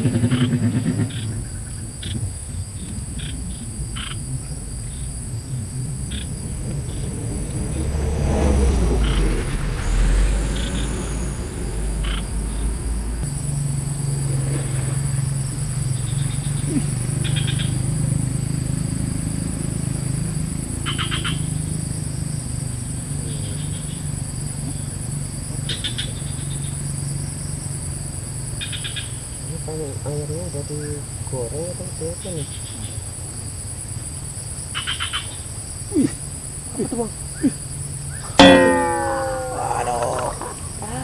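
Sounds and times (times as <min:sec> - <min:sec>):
frogs calling in pulsed trains: 0:00.0 - 0:41.0
high insect drone: 0:00.0 - 0:41.0
low steady drone: 0:03.3 - 0:15.6, 0:38.4 - 0:41.0.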